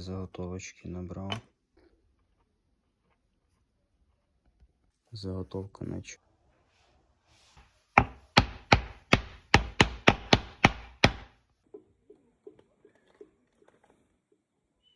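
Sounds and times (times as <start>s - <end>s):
sharp blows on wood: 8.0s - 11.4s.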